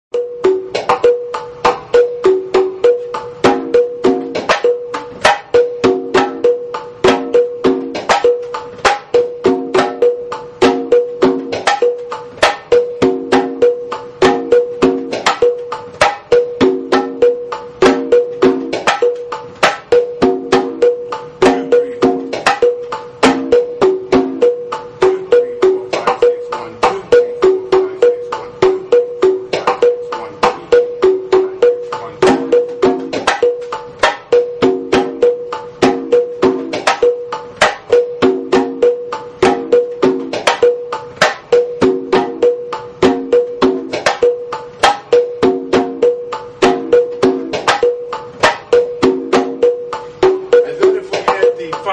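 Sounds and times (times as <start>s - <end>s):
hand drums in fast rhythm: 0.1s - 51.9s.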